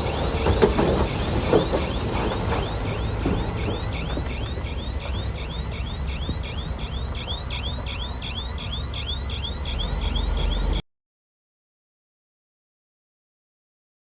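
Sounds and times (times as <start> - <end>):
heavy machinery engine rumble: 0.0 - 10.8
rhythmic high-pitched squeal: 0.0 - 10.8.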